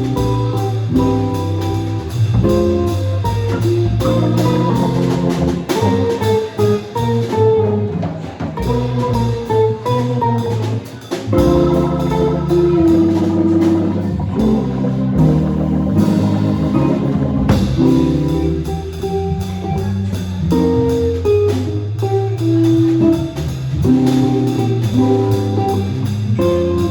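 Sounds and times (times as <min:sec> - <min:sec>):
drum kit: 0:00.0 - 0:26.9
guitar: 0:00.0 - 0:26.9
live band instrumental: 0:00.0 - 0:26.9.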